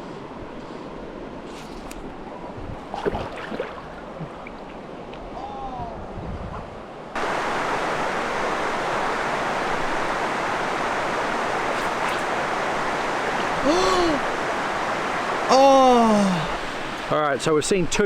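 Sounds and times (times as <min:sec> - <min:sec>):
rushing river: 0:00.1 - 0:06.1, 0:06.8 - 0:18.0.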